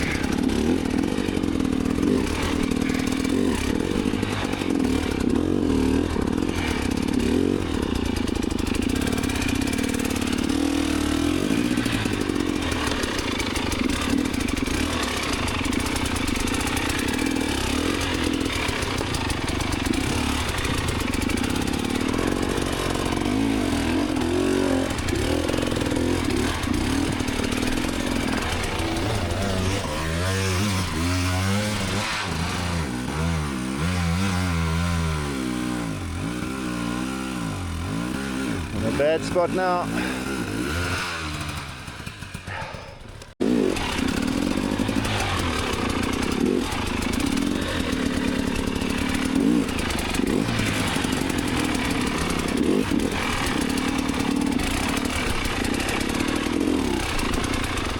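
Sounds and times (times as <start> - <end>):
dirt bike engine revving: 0.0 - 57.9
bike clattering: 11.7 - 32.2.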